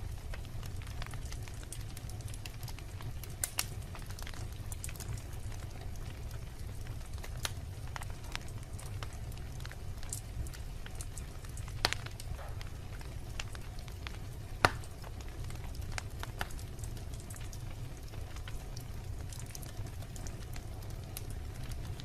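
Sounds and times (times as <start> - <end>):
fire crackling and popping: 0.0 - 22.0.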